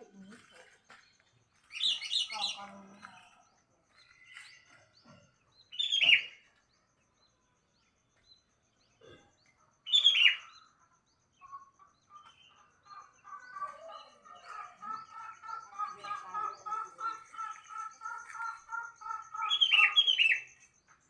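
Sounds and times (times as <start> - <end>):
faint bird chirps: 0.0 - 21.0.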